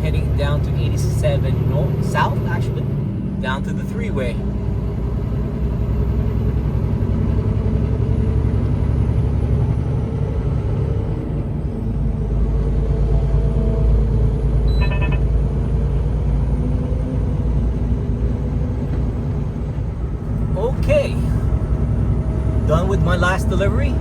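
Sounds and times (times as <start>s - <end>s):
truck engine and road noise: 0.0s - 24.0s
high-pitched beep: 14.7s - 15.3s.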